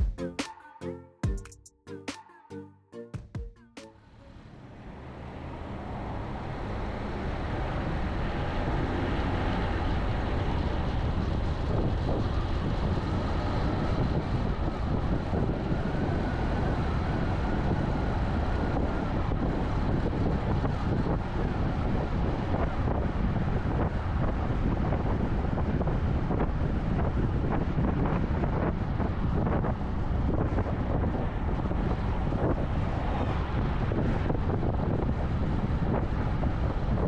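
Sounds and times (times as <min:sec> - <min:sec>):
music: 0:00.0 - 0:04.4
car road and wind noise: 0:04.3 - 0:37.0.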